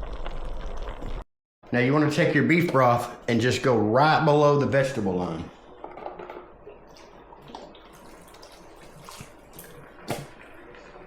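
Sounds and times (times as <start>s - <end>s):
liquid pouring into pot: 7.0s - 11.0s.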